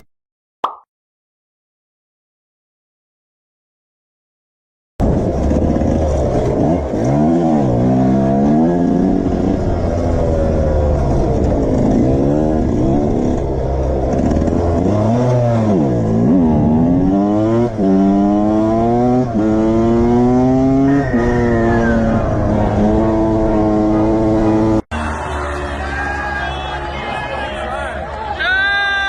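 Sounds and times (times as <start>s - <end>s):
motorcycle engine revving: 5.0s - 26.3s.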